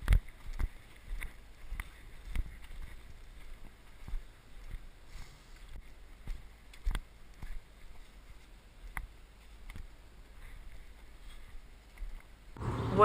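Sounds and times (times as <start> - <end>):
low steady rumble: 12.6 - 13.0.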